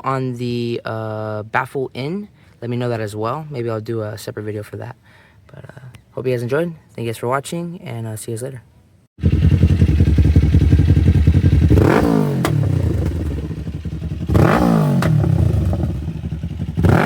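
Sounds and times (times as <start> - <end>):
motorcycle engine revving: 9.2 - 17.0
sharp exhaust pop: 9.2 - 17.0.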